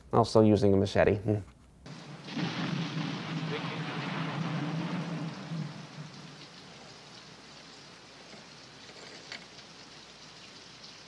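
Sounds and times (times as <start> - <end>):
low rumble: 1.9 - 7.5
rain hissing: 1.9 - 11.0.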